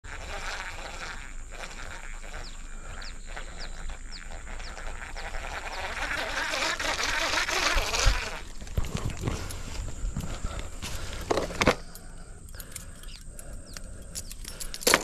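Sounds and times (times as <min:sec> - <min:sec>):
bird chirping: 0:02.2 - 0:06.0, 0:11.8 - 0:14.6.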